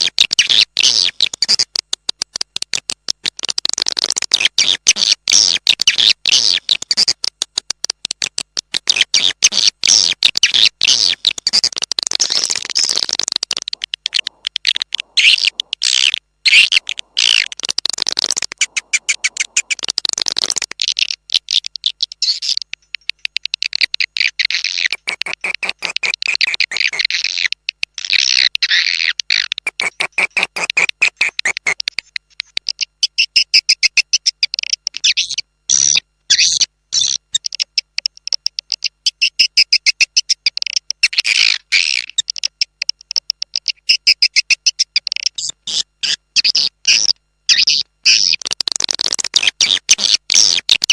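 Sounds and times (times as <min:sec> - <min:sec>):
swiftlets twittering: 0:08.9 - 0:26.9.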